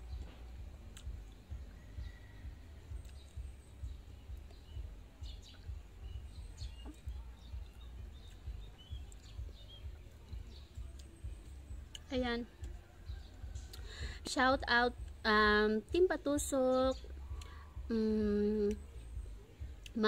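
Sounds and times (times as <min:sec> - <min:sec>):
small birds chirping faintly: 0:00.0 - 0:20.0.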